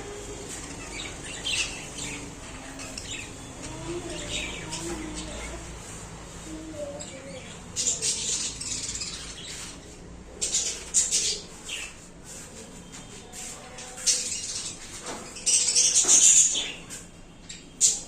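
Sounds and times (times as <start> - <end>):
budgerigars chirping: 0.5 - 3.5.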